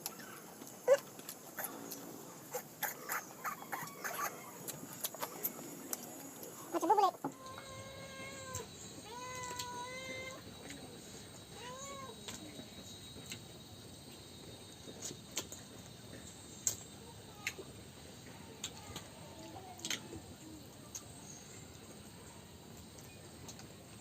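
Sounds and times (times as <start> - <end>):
cat meowing: 6.8 - 10.4.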